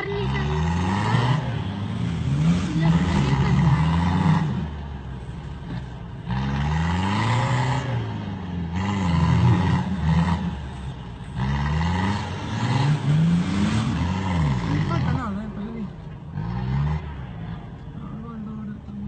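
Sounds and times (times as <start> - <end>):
engine revving hard: 0.0 - 4.9, 5.7 - 15.6.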